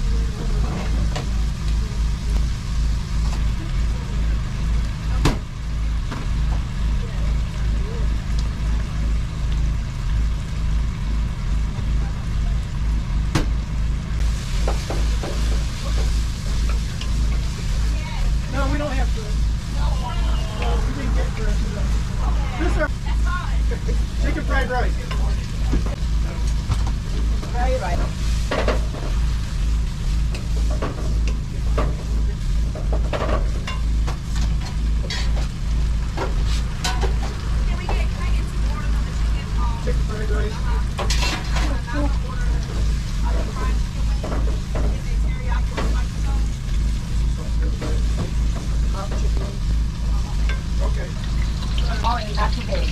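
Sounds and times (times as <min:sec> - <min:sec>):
engine droning: 0:00.0 - 0:52.9
food sizzling: 0:00.0 - 0:52.9
kitchen machinery hum: 0:00.0 - 0:52.9
utensils scraping and clattering: 0:33.1 - 0:35.6, 0:41.0 - 0:41.8.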